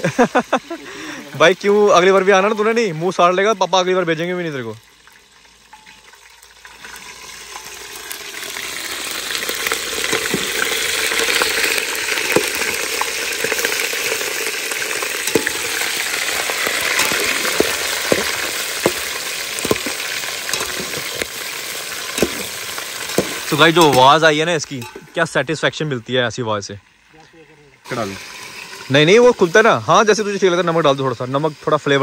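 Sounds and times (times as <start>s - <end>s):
chicken sizzling in hot oil: 0.0s - 25.4s, 27.8s - 32.0s
oil pops and crackles: 4.8s - 25.3s.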